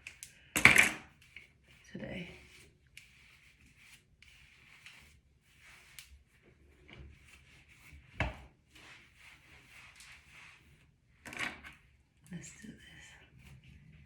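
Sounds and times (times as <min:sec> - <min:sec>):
rustling of wig hair: 0:00.0 - 0:14.0.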